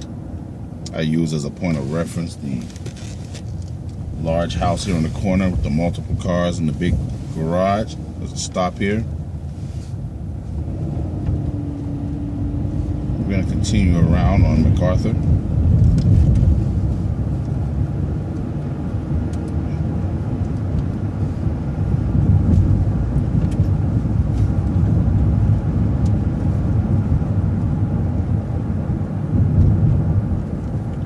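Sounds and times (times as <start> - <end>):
bus engine and road noise: 0.0 - 31.0.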